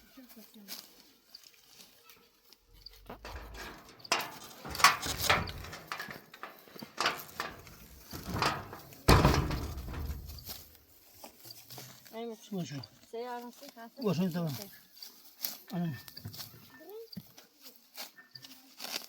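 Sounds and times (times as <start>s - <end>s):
rustles: 0.1s - 12.2s, 17.4s - 19.0s
thumps: 2.8s - 10.8s.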